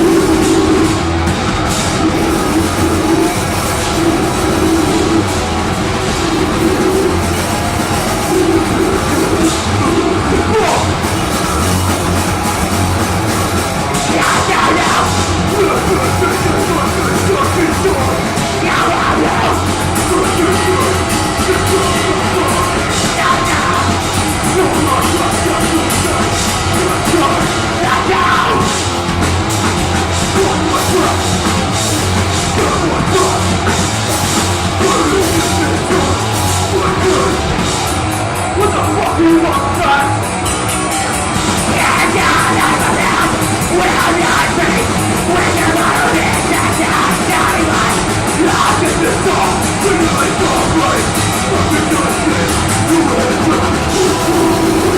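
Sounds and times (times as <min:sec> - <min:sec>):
growled vocals: 0:00.0 - 0:40.3, 0:41.4 - 0:54.9
metal band playing: 0:00.0 - 0:54.9.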